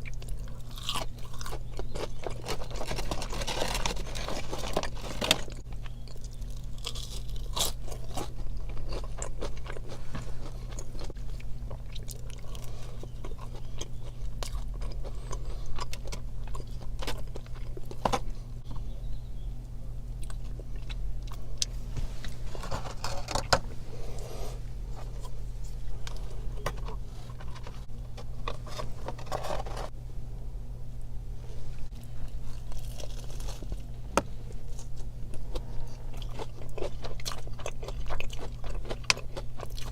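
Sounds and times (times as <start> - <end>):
crunching bites of fried food: 0.0 - 18.8, 31.9 - 39.9
wet chewing: 0.0 - 19.0, 34.5 - 39.9
faint low hum: 0.0 - 39.9.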